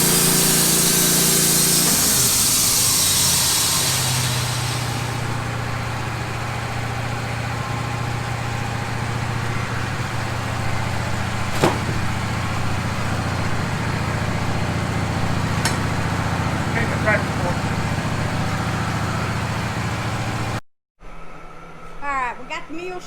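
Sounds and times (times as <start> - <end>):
saw blade sawing: 0.0 - 5.7, 11.4 - 12.4
engine idling: 0.0 - 20.6.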